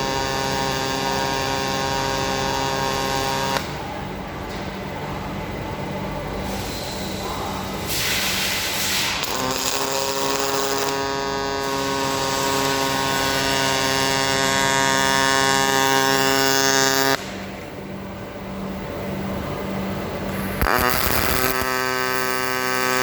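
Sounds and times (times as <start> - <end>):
welding arc buzzing: 0.0 - 3.9, 7.9 - 17.4, 19.6 - 23.0
gas hiss: 7.8 - 13.6, 20.3 - 23.0.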